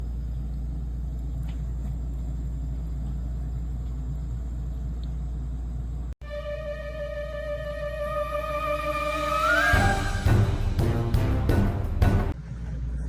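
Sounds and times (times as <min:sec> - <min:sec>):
steady low rumble: 0:00.0 - 0:08.2
background music with held notes: 0:06.2 - 0:12.4.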